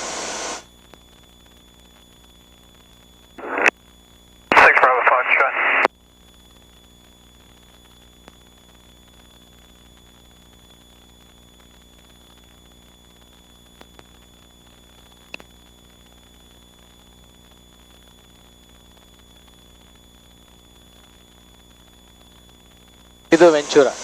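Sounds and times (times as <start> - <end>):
radio static hiss: 0.0 - 24.0
faint clicks: 13.7 - 14.2, 15.0 - 15.6.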